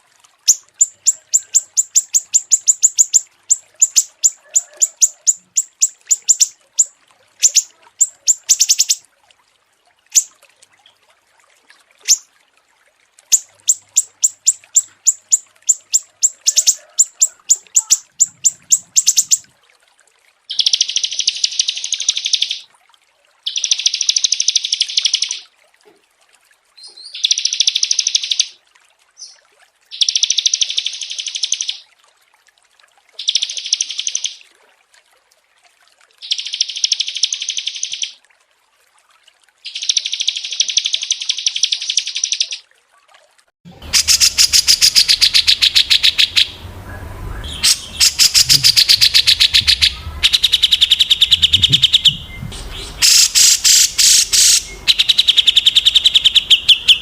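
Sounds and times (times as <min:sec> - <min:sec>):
songbirds chirping: 0:00.4 - 0:09.0, 0:13.3 - 0:19.5, 0:43.8 - 0:57.0
buzzy bird trills: 0:00.5 - 0:09.0, 0:12.0 - 0:12.2, 0:13.3 - 0:19.4, 0:43.8 - 0:57.0.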